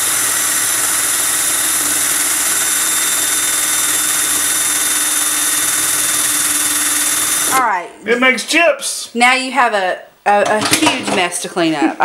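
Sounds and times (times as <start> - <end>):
power drill running: 0.0 - 7.8.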